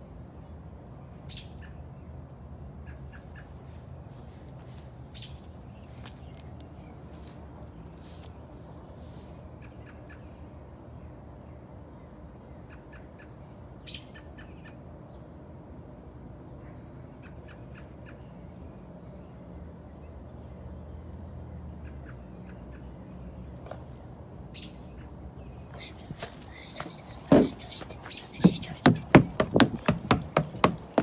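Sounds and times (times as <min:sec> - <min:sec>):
small birds chirping: 0:24.6 - 0:31.0.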